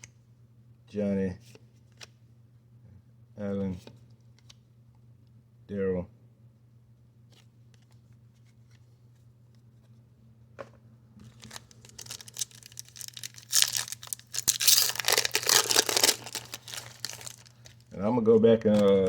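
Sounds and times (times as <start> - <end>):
wrapper crinkling and tearing: 11.2 - 18.0.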